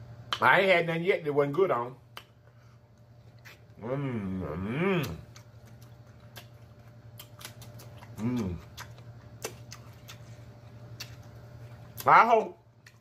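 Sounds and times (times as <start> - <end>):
wet mouth chewing: 2.2 - 3.8, 4.9 - 12.2, 12.8 - 13.0
person humming mmm: 3.8 - 5.3, 8.1 - 8.8.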